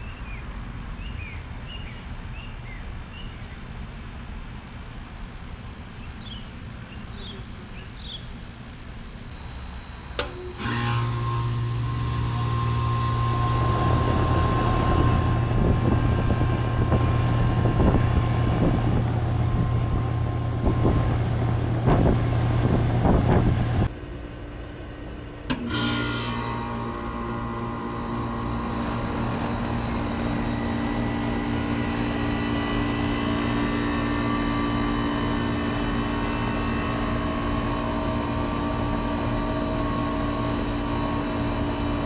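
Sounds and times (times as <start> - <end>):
compressor humming: 9.3 - 42.0
condenser fan spinning: 9.3 - 42.0
air conditioner switch click: 10.1 - 10.7, 25.4 - 25.8.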